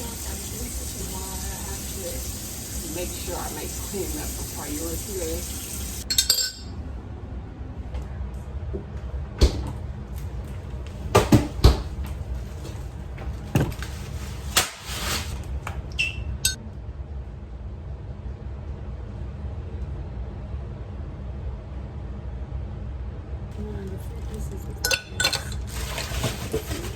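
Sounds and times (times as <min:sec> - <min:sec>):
kitchen items knocking and clattering: 0:11.0 - 0:14.3, 0:24.3 - 0:26.9
steady low hum: 0:15.6 - 0:25.7.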